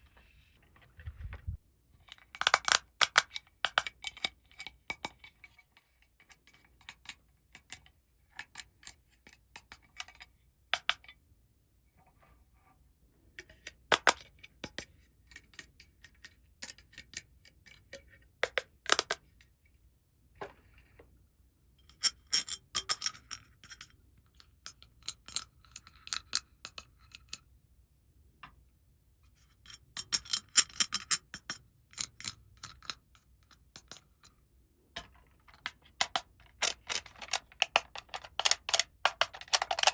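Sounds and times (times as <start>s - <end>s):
plastic toy pieces clicking: 2.3s - 4.3s, 35.4s - 39.9s.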